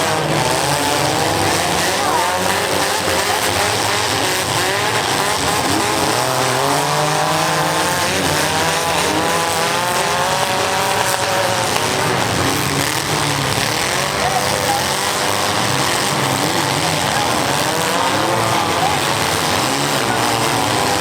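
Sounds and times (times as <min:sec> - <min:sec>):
small car engines revving: 0:00.0 - 0:21.0.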